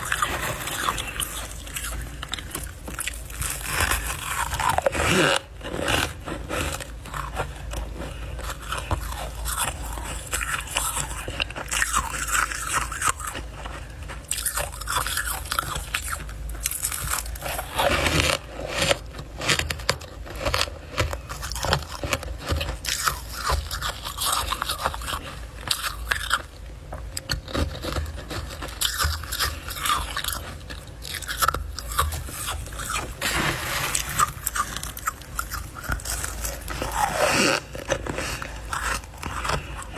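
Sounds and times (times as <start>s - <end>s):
chewing crunchy frost: 0.0s - 39.9s
scraping: 29.8s - 39.9s.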